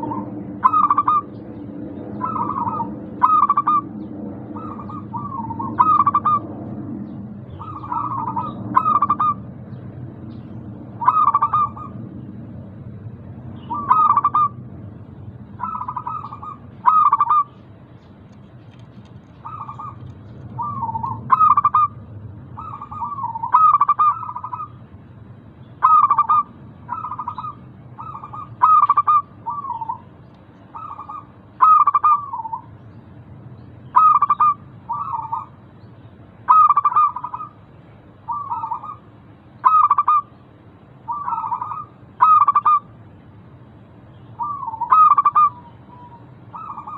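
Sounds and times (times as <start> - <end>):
dove cooing: 0.0 - 6.6, 7.5 - 9.5, 11.0 - 12.1, 13.6 - 14.6, 15.6 - 17.6, 19.4 - 22.0, 22.6 - 24.8, 25.8 - 30.1, 30.7 - 32.7, 33.9 - 35.6, 36.5 - 37.6, 38.3 - 40.3, 41.1 - 42.9, 44.4 - 46.9
low steady hum: 0.0 - 46.9.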